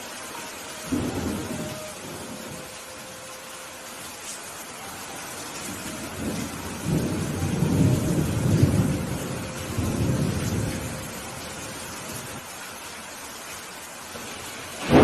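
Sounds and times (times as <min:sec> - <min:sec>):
steady rain: 0:00.0 - 0:15.0
thunder rumbling: 0:00.7 - 0:02.9, 0:05.0 - 0:12.5, 0:14.2 - 0:15.0.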